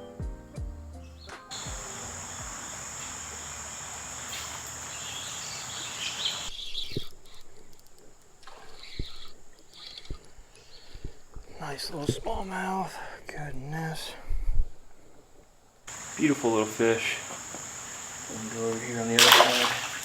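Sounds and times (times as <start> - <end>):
background music: 0.0 - 2.6
birds chirping: 1.1 - 11.2, 15.9 - 20.0
creek water rushing: 1.5 - 6.5, 15.9 - 20.0.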